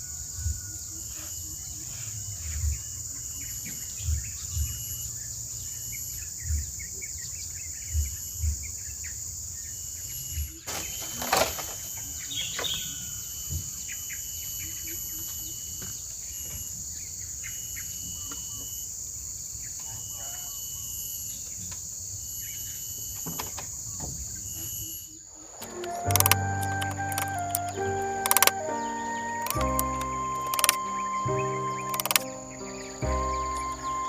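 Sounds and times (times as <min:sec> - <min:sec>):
high insect chorus: 0:00.0 - 0:34.0
bird chirps: 0:25.4 - 0:34.0.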